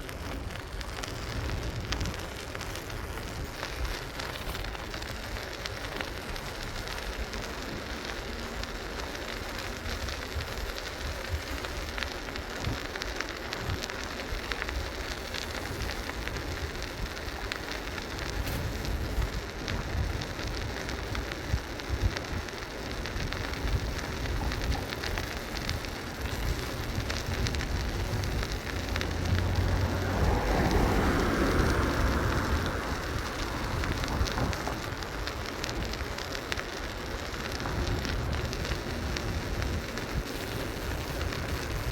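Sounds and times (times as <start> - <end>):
bicycle clicks and rattles: 0.0 - 41.9
bicycle tyres on pavement: 0.0 - 41.9
wind on microphone: 13.6 - 41.9.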